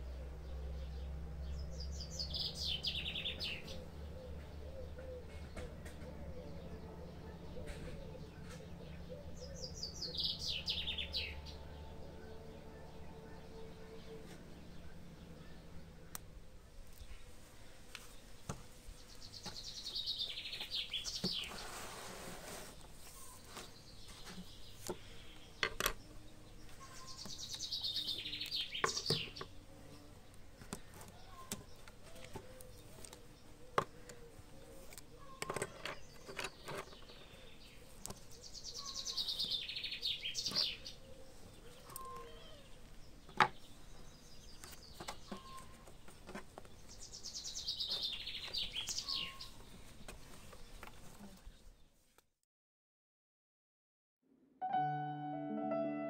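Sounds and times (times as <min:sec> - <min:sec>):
songbird trill: 0:00.0 - 0:16.3, 0:18.9 - 0:21.8, 0:22.8 - 0:49.9
pencils tapping on wooden table: 0:25.6 - 0:26.0.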